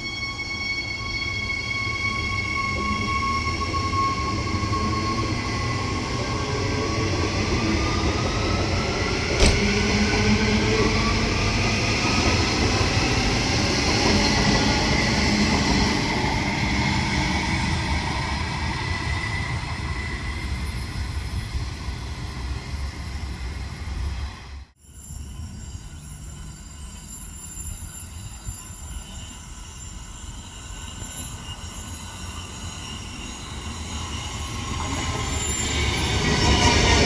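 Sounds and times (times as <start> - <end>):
train motor whine: 0.3 - 37.0
train wheels rumbling on rails: 2.7 - 37.0
sharp click: 9.4 - 9.7
faint high-pitched squeal: 12.8 - 37.0.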